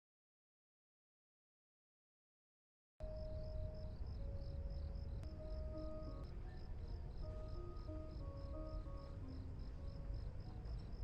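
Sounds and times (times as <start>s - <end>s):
cricket chirping: 3.0s - 11.0s
faint music with held notes: 3.0s - 11.0s.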